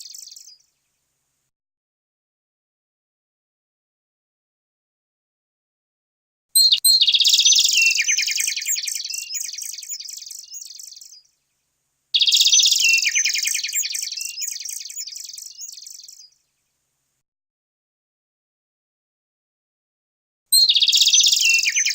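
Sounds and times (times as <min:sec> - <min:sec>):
songbird chirping trill: 0:00.0 - 0:01.2, 0:06.6 - 0:16.9, 0:20.5 - 0:21.9.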